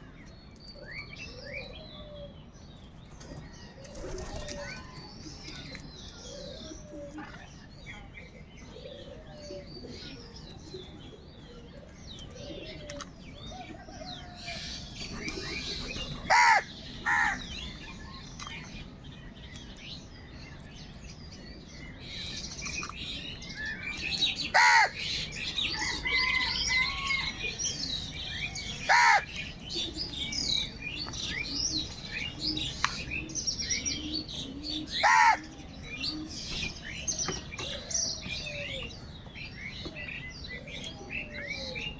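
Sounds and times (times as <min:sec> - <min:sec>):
small birds chirping: 0:00.0 - 0:41.9
crows cawing: 0:16.3 - 0:17.5, 0:24.5 - 0:25.0, 0:28.9 - 0:29.4, 0:35.0 - 0:35.6.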